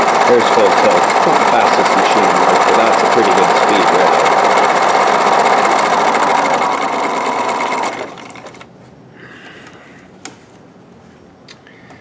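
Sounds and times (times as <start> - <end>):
electric sewing machine stitching: 0.0 - 8.7.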